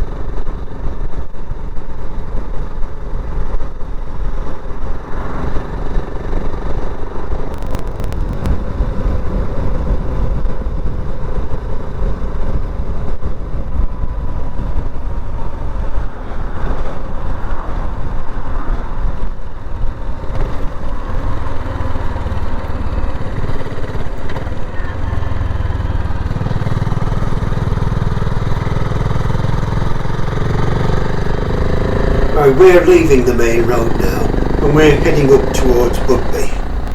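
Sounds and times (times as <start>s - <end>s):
wind rush over microphone: 4.6s - 21.6s
motorcycle engine running: 20.5s - 35.8s.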